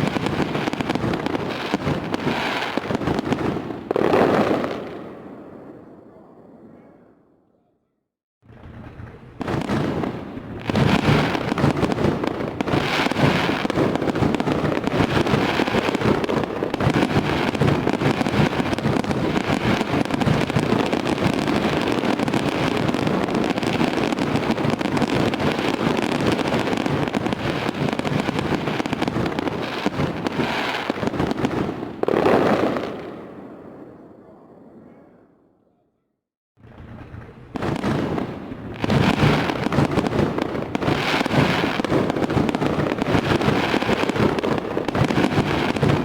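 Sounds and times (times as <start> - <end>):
fireworks bangs and crackling: 0.0 - 6.8, 8.4 - 34.9, 36.6 - 46.0.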